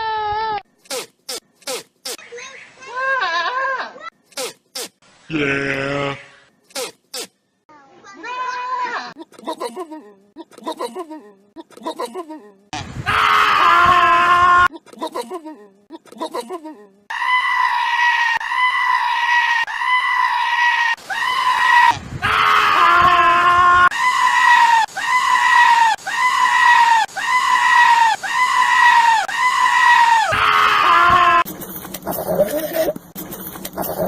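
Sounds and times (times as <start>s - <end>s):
goat screaming: 2.8s - 4.1s, 8.2s - 9.2s, 17.1s - 31.5s, 32.1s - 33.0s.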